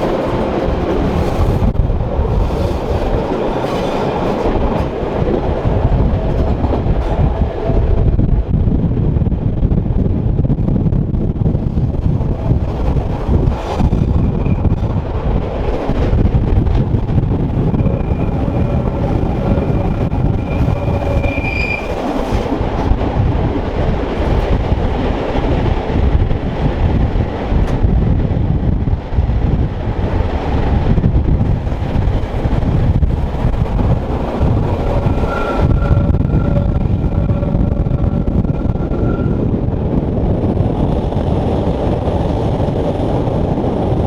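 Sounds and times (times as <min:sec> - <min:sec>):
train wheels rumbling on rail: 0:00.0 - 0:44.0
high wheel squeal: 0:17.4 - 0:22.6, 0:32.9 - 0:39.6.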